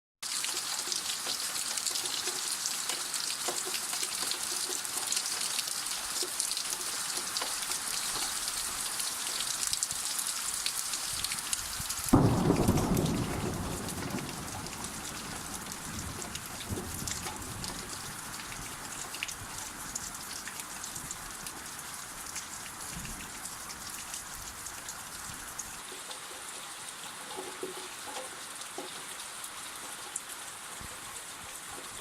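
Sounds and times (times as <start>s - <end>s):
steady rain falling: 0.2s - 32.0s
thunderclap: 12.1s - 18.1s.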